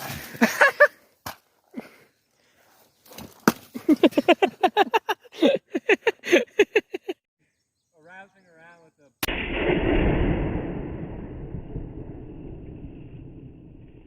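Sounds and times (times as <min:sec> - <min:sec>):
person laughing hard: 0:00.3 - 0:01.0, 0:03.8 - 0:07.2.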